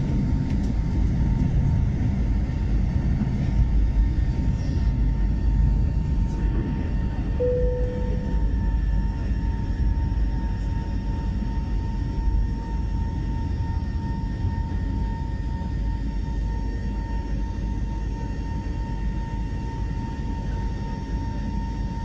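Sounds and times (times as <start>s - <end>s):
airliner cabin engine rumble: 0.0s - 22.0s
thin steady whine: 7.2s - 14.8s
short tone: 7.4s - 8.7s.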